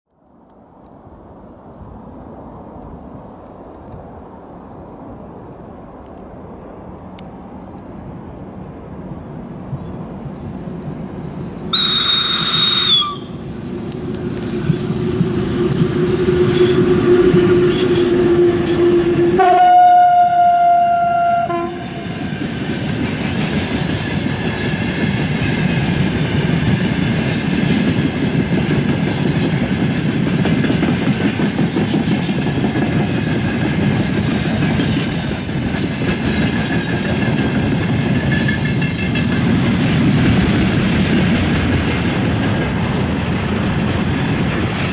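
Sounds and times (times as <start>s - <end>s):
electric locomotive passing: 4.2s - 44.9s
locomotive horn blast: 11.7s - 13.5s, 15.6s - 22.2s
freight wagons rail clatter: 27.3s - 44.9s.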